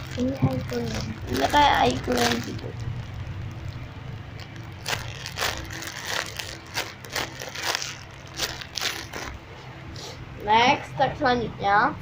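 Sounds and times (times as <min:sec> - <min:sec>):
squishy toy crinkling and crunching: 0:00.0 - 0:09.4.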